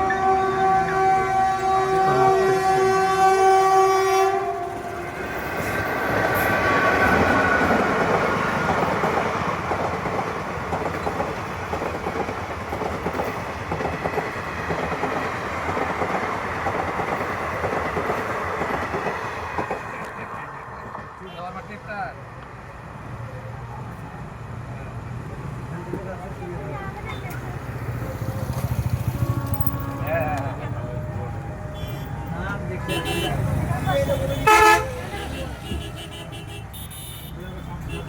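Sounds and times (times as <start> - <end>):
train horn blaring: 0.0 - 6.5, 28.0 - 38.0
train wheels clattering over rails: 4.6 - 21.2.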